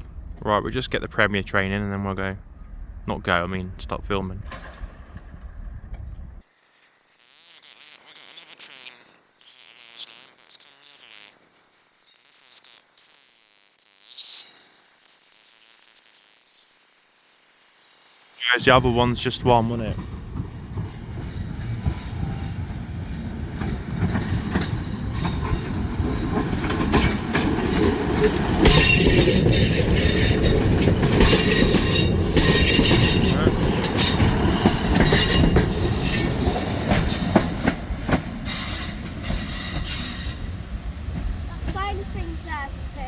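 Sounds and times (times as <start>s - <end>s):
train passing: 18.5s - 43.0s
wheels squealing and clicking: 23.6s - 40.6s.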